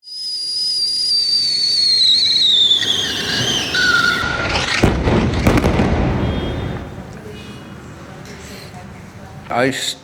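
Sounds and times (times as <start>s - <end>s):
high whistle sliding down in pitch: 0.0s - 4.6s
rush of noise ending in blast: 2.2s - 6.2s.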